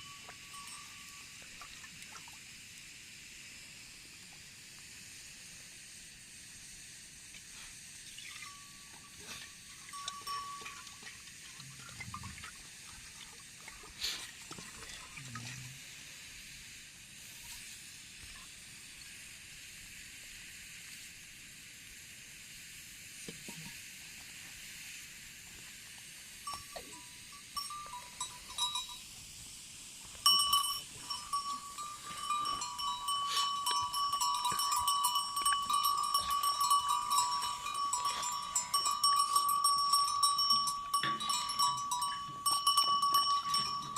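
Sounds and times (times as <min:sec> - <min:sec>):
sheep bells clanking: 0:00.0 - 0:01.9, 0:08.2 - 0:12.4, 0:26.4 - 0:29.2, 0:30.1 - 0:43.9
faint hiss: 0:00.0 - 0:43.6.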